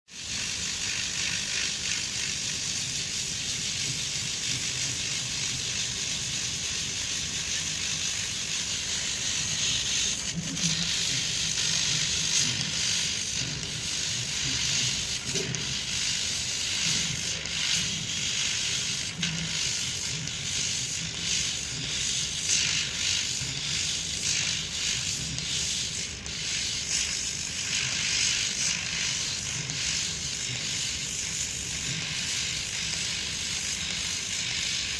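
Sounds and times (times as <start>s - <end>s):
engraving machine hiss and hum: 0.1s - 34.9s.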